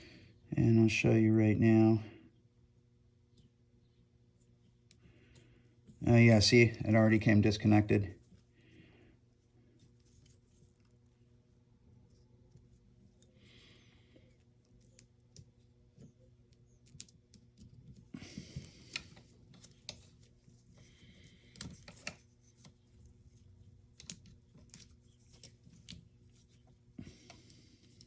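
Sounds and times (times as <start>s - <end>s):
low steady hum: 0.0s - 28.0s
small parts clicking and tapping: 12.1s - 28.0s.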